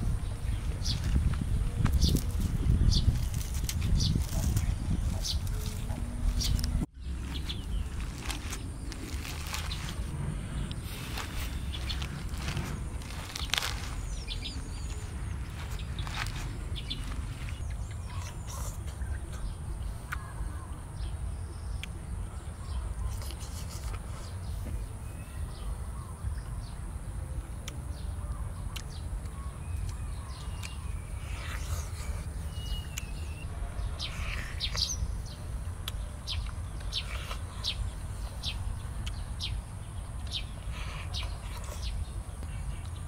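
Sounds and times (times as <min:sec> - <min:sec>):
steady low rumble: 0:00.0 - 0:23.0
small birds chirping: 0:00.0 - 0:43.0.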